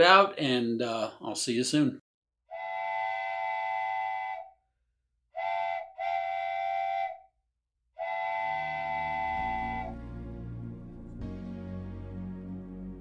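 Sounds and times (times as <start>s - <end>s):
multi-tone train whistle blasts: 2.5s - 4.6s, 5.3s - 7.3s, 8.0s - 10.1s.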